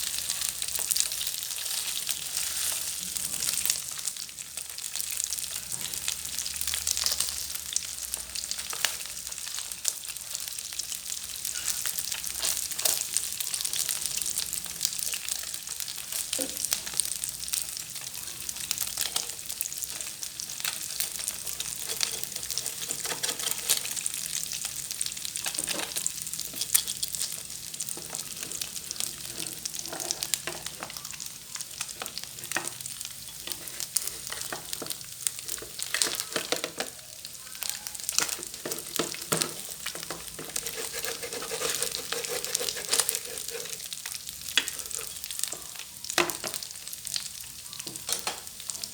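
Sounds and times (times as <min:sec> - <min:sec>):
fish frying in hot oil: 0:00.0 - 0:48.9.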